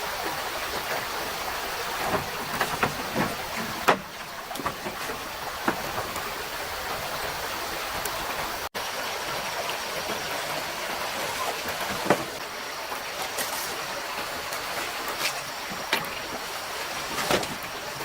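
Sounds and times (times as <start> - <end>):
stream running over rocks: 0.0 - 18.0.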